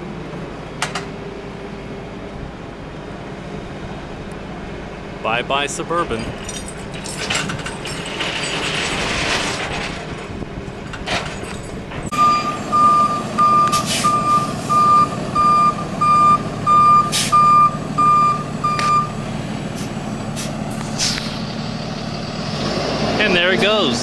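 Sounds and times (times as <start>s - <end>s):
truck engine running: 0.0s - 24.0s
truck backup alarm beeping: 11.5s - 22.2s
hiss: 19.8s - 21.5s.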